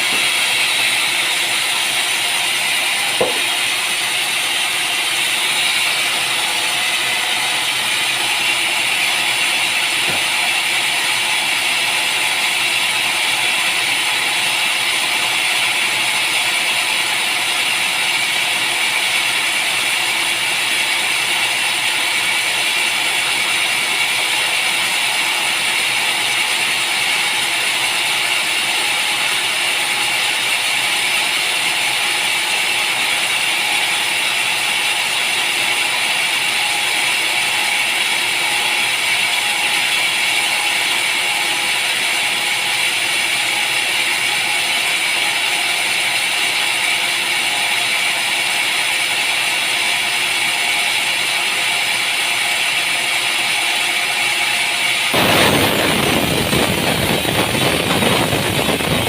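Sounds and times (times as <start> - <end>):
sawmill machinery running: 0.0 - 59.0.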